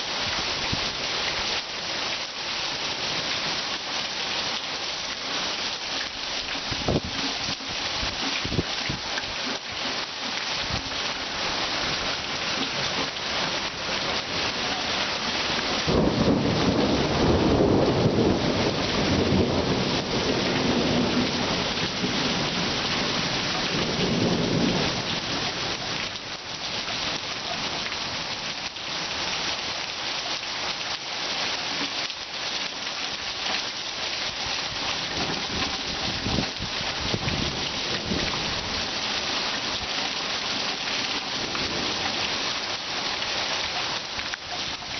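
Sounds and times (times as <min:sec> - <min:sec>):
heavy rain pouring: 0:00.0 - 0:44.9
thunder rumble: 0:15.8 - 0:25.1.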